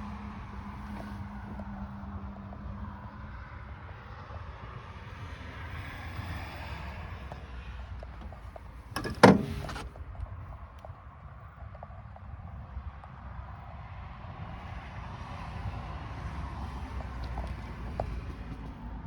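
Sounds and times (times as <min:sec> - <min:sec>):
tractor diesel engine rumbling: 0:07.9 - 0:10.3
loud clunk: 0:08.2 - 0:10.0.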